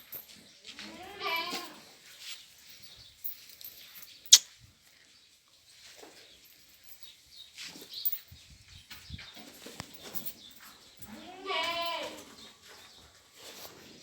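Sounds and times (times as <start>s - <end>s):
faint goat bleats: 0.8s - 1.8s, 11.2s - 12.2s.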